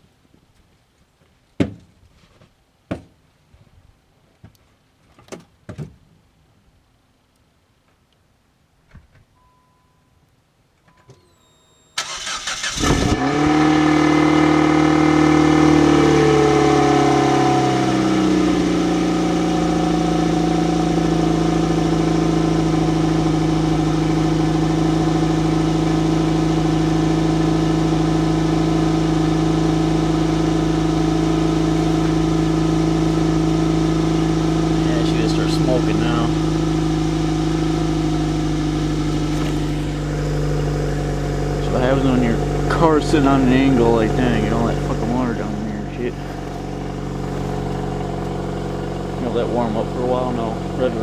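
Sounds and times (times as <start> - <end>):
short beeps: 9.4 - 12.0
car engine cranking: 11.0 - 51.0
car engine idling: 11.3 - 51.0.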